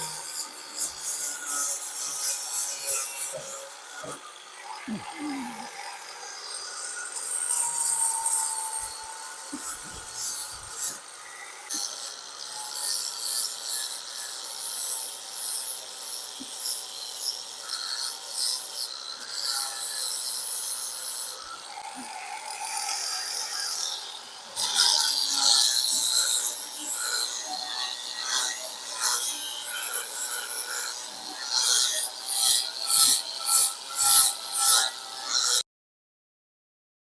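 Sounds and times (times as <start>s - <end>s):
sandpaper rasping over filler: 7.2s - 11.0s.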